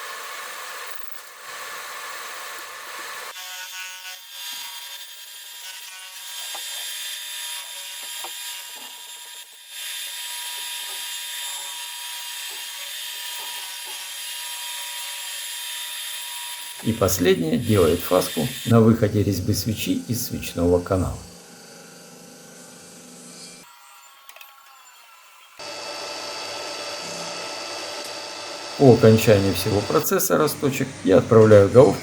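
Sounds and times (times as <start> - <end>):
machine cutter cutting metal: 5.6 - 21.4, 25.6 - 32.0.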